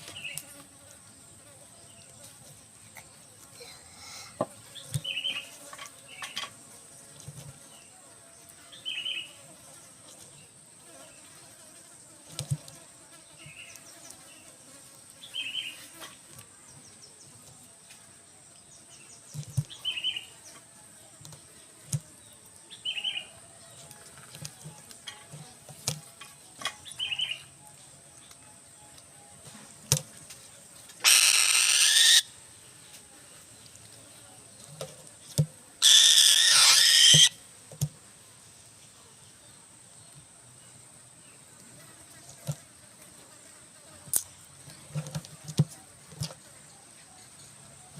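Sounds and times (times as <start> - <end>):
falcon giving short high calls: 31.0 - 32.2.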